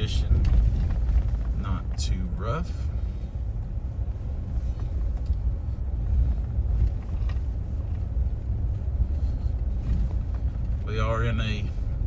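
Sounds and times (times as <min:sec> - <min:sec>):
pickup truck rumble on gravel: 0:00.0 - 0:02.9.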